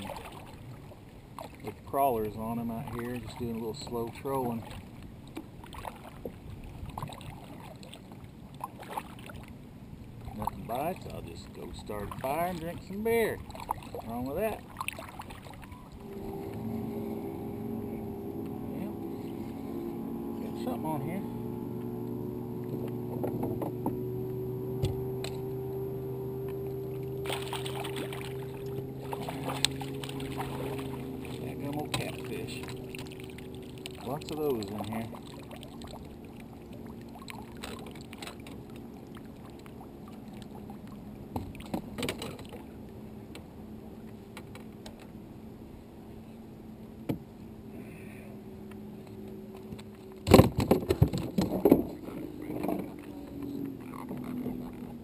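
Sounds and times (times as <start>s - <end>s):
steady low hum: 0.0s - 55.0s
fish splashing at water surface: 27.2s - 38.6s.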